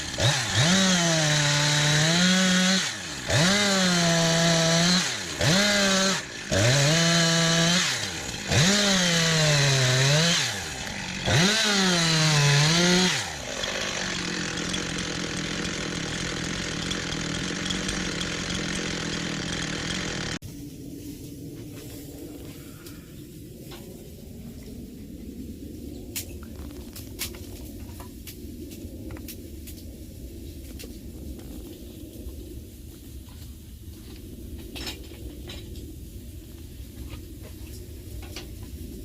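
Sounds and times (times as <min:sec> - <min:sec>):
chainsaw cutting wood: 0:00.0 - 0:20.4
chainsaw idling: 0:00.0 - 0:20.4.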